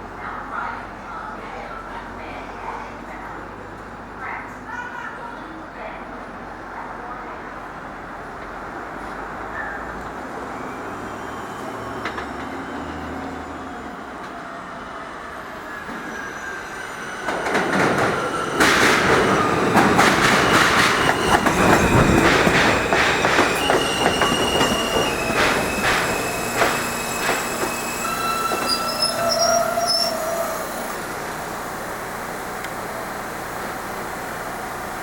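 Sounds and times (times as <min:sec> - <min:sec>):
wheels clattering over rail joints: 0:17.2 - 0:29.9
train wheel rumble: 0:17.2 - 0:35.0
high wheel squeals: 0:19.2 - 0:31.2
train motor whine: 0:19.3 - 0:31.6.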